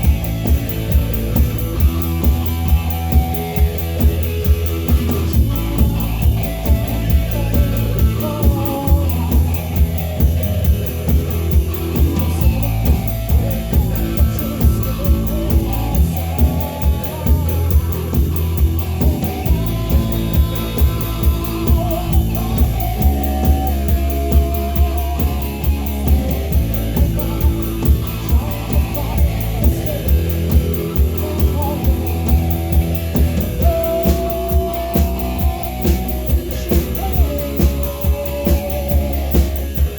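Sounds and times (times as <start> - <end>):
bass guitar: 0.0 - 39.9
drum kit beat: 0.0 - 39.9
electric guitars: 0.0 - 39.9.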